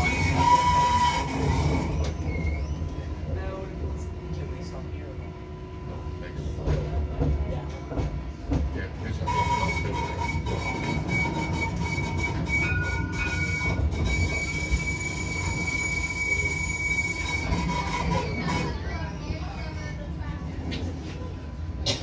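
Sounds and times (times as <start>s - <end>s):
tram wheels squealing: 0.0s - 3.2s, 9.1s - 19.4s
tram running rumble: 0.0s - 22.0s.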